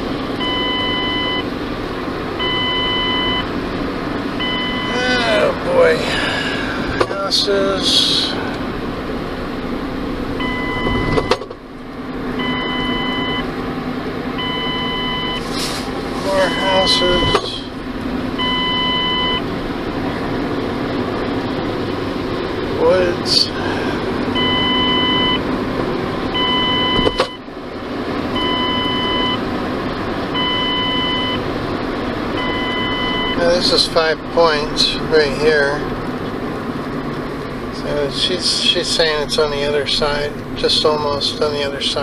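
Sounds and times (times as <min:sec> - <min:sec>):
car road and engine noise: 0:00.0 - 0:42.0
electronic beep: 0:10.4 - 0:11.4, 0:16.4 - 0:17.4, 0:18.4 - 0:19.4.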